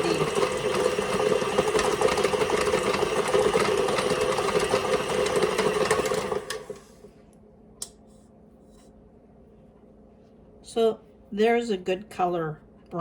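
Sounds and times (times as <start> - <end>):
food processor motor running: 0.0 - 7.0.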